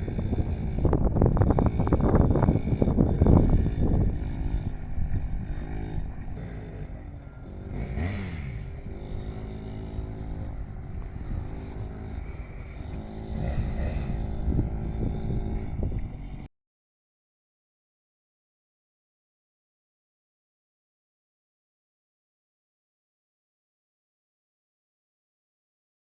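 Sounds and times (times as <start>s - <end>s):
minibike two-stroke engine revving: 0.0s - 16.5s.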